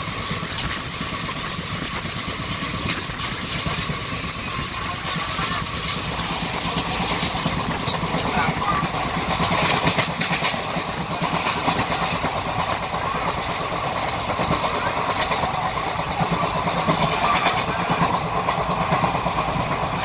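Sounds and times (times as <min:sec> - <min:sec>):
coach rattling and clatter: 0:00.0 - 0:20.0
train wheels rumbling on rails: 0:00.0 - 0:20.0.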